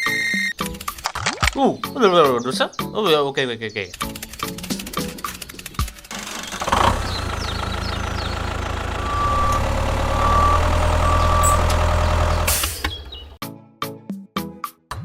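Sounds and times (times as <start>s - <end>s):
truck engine running: 4.2s - 13.4s
reversing alarm beeps: 9.0s - 11.8s.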